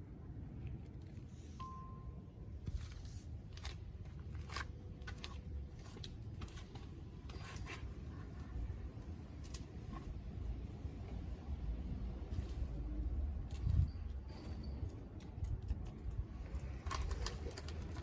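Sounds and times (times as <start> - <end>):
short steady beep: 1.6 - 2.3
handling clicks and scrapes: 2.6 - 10.3, 13.4 - 18.0.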